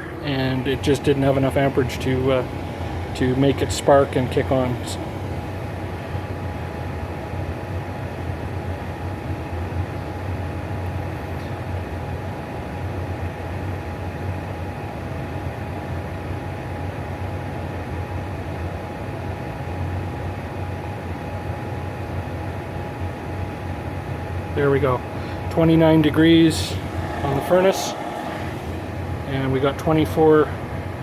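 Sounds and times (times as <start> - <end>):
thin steady whine: 0.0 - 7.6, 21.9 - 31.0
furnace blower fan rushing: 0.0 - 31.0.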